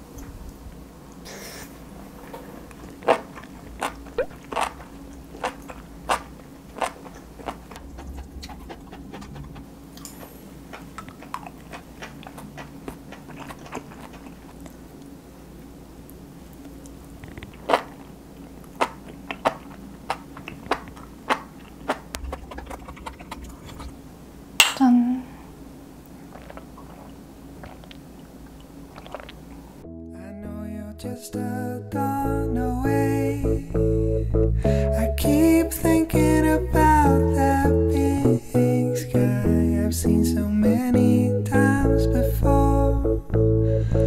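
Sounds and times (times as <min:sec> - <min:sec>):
crunchy chewing and biting: 0:02.4 - 0:15.1, 0:16.6 - 0:24.0, 0:26.1 - 0:29.6.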